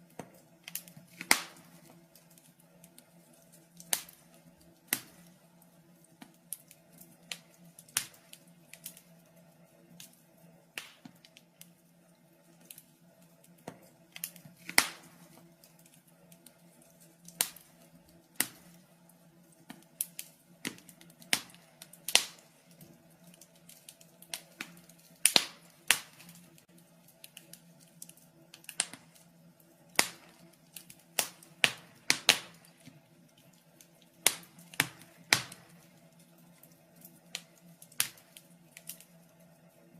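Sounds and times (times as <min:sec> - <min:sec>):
faint steady hum: 0:00.0 - 0:39.9
wood fire crackling: 0:00.0 - 0:39.9.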